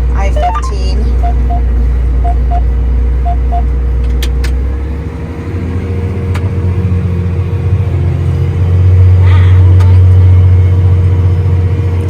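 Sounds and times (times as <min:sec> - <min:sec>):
tractor engine running: 0:00.0 - 0:12.0
short electronic beeps: 0:00.2 - 0:03.7.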